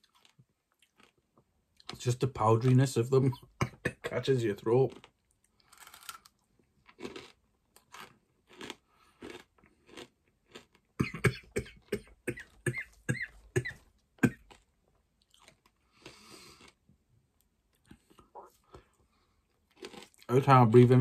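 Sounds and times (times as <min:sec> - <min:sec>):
crunchy pork scratchings chewed: 0:00.0 - 0:02.0, 0:04.8 - 0:11.2, 0:13.6 - 0:16.8, 0:19.5 - 0:20.4.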